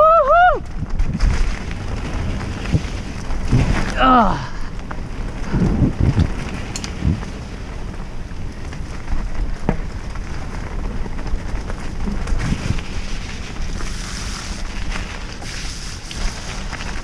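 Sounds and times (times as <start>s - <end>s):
mountain bike rolling rumble: 0.0s - 17.0s
wind buffeting microphone: 0.0s - 17.0s
bike knocks and rattles: 8.6s - 13.0s.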